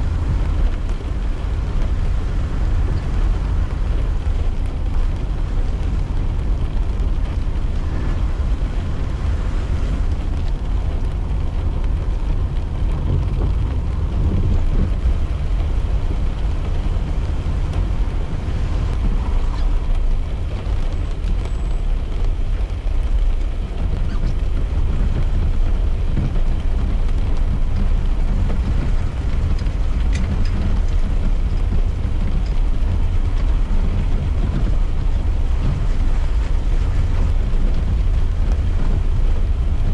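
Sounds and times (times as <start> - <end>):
car driving low rumble: 0.0 - 39.9
rain and wet road hiss: 0.0 - 39.9.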